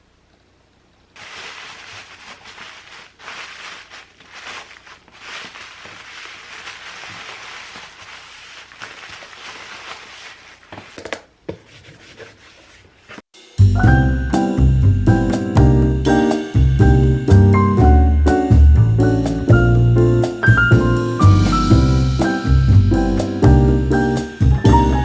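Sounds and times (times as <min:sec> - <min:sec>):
packing materials crinkling: 0:01.1 - 0:11.3.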